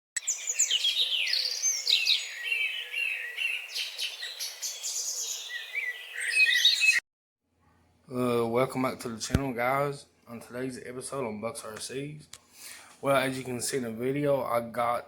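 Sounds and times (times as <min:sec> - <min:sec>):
birds chirping and singing: 0:00.2 - 0:07.0.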